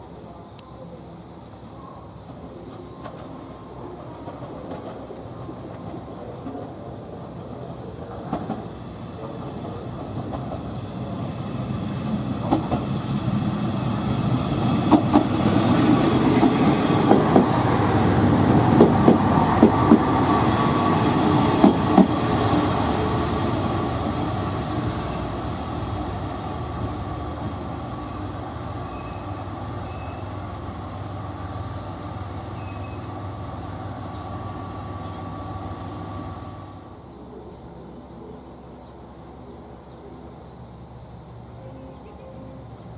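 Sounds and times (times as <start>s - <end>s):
train passing: 0.0s - 42.9s
wheels clacking over rail joints: 8.0s - 11.2s, 12.3s - 25.3s.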